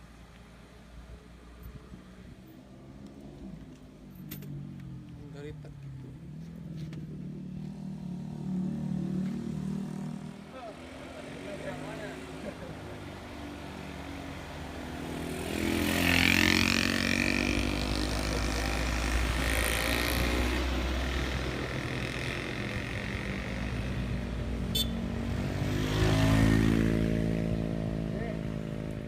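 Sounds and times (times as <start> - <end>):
heavy vehicle engines labouring: 15.8 - 29.0.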